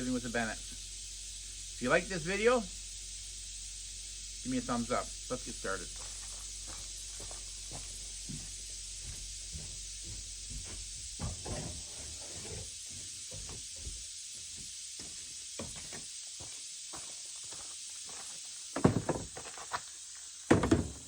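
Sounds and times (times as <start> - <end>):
background hiss: 0.0 - 21.0
light knocks and bumps: 7.2 - 16.0, 18.8 - 19.7, 20.5 - 21.0.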